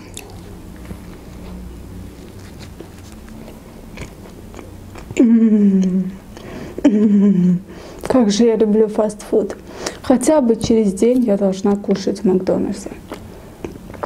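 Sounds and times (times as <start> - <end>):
person chewing: 0.0 - 6.6, 12.9 - 14.0
person humming mmm: 5.0 - 7.7.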